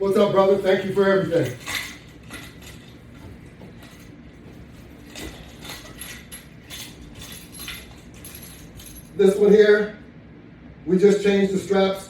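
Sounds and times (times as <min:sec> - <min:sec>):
metal jingles: 0:00.7 - 0:09.4.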